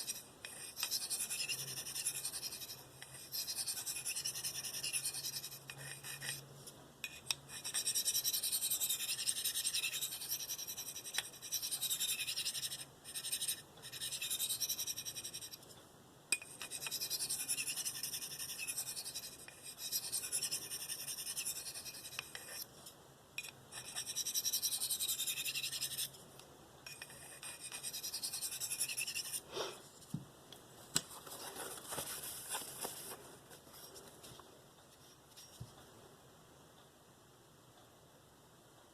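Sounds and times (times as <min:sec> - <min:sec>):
knife scraping on sharpening stone: 0:00.0 - 0:15.6, 0:16.4 - 0:22.7, 0:23.4 - 0:26.1, 0:26.8 - 0:29.8.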